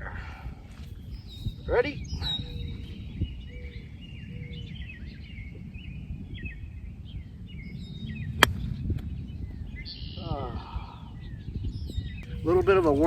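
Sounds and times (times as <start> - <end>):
small birds chirping: 0.0 - 13.0
wind rumble on microphone: 0.0 - 13.0
golf club striking ball: 8.4 - 8.7.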